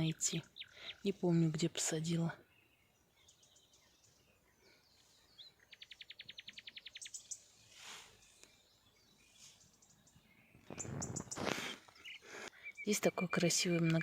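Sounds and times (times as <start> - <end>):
soft rustles: 7.5 - 8.6, 10.6 - 12.0
short high bird chirps: 9.2 - 12.9
bird trilling: 10.6 - 12.9.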